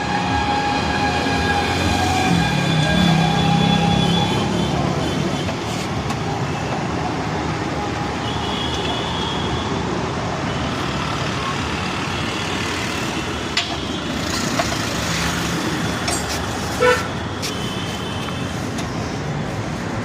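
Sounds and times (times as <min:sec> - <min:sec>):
road traffic noise: 0:00.0 - 0:20.0
vehicle horn toot: 0:16.8 - 0:18.0.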